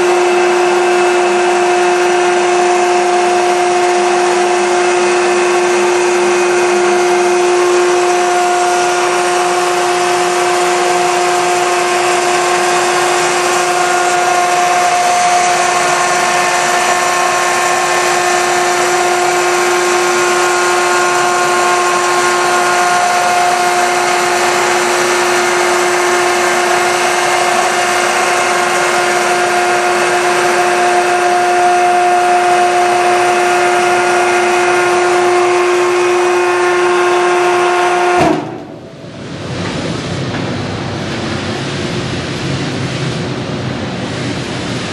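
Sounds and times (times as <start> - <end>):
baler motor whine and hiss: 0.0 - 44.9.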